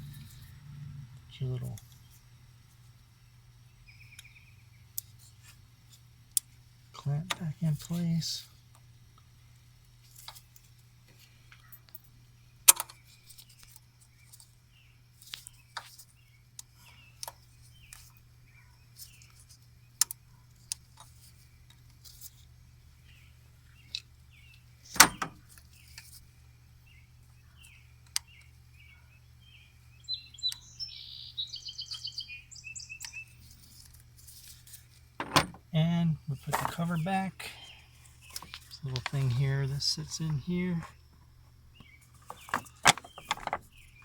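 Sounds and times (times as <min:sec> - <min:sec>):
birds chirping: 0:03.0 - 0:05.3, 0:26.8 - 0:34.1, 0:34.9 - 0:44.0
clicks and knocks of hand work: 0:42.2 - 0:43.7.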